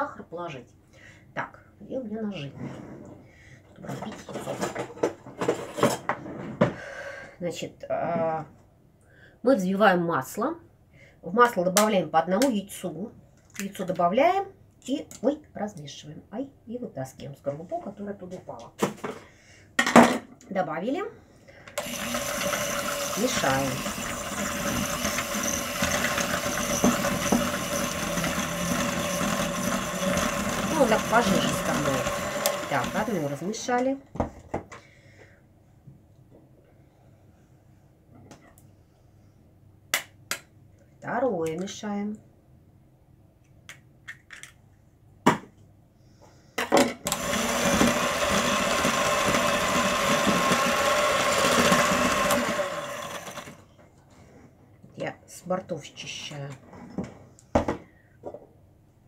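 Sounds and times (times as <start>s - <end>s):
electric mixer running: 21.8s - 33.5s, 47.1s - 53.6s.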